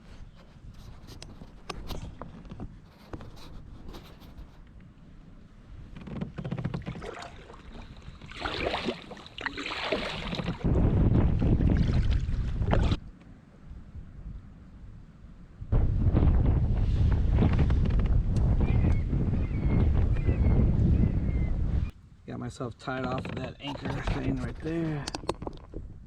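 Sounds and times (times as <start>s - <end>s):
wind buffeting microphone: 5.6s - 22.0s, 23.0s - 26.0s
paddle splashing in water: 6.3s - 13.0s.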